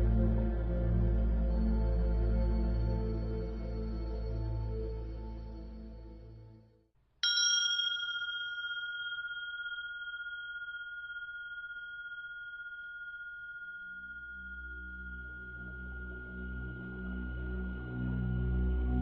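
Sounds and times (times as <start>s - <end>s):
low musical drone: 0.0s - 6.3s, 14.3s - 19.0s
struck bell ringing: 7.2s - 16.1s.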